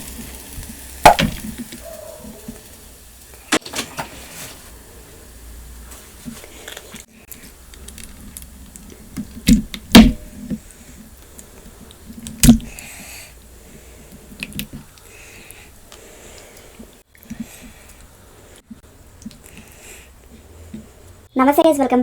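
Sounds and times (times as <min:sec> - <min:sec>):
handling clicks and squishes: 0:06.3 - 0:12.9, 0:14.1 - 0:18.1, 0:18.7 - 0:19.8.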